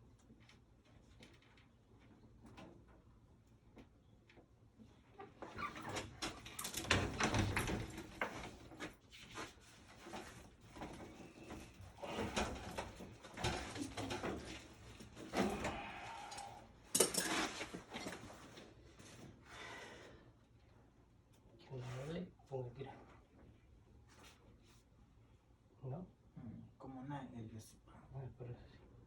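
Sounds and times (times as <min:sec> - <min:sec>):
scraping rustling and knocking: 0:05.4 - 0:15.8.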